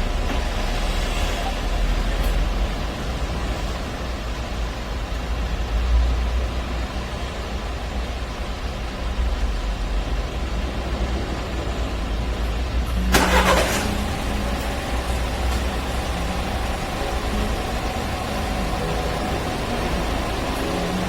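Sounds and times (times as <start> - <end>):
car engine idling: 0.0 - 21.0
car engine cranking: 12.0 - 21.0.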